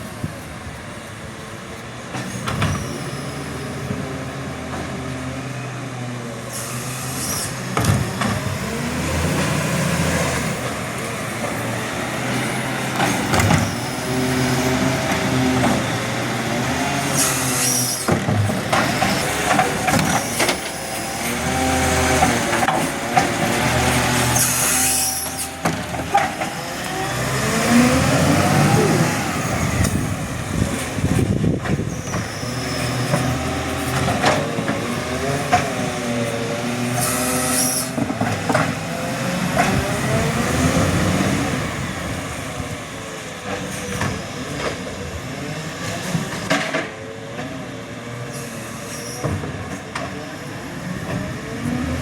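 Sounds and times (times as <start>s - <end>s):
diesel truck engine running: 25.2s - 32.0s.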